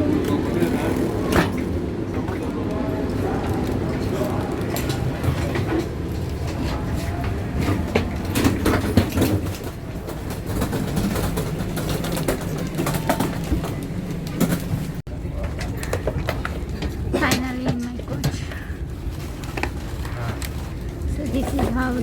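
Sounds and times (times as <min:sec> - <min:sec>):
train low rumble: 0:00.0 - 0:22.0
scattered clicks and knocks: 0:03.4 - 0:18.6.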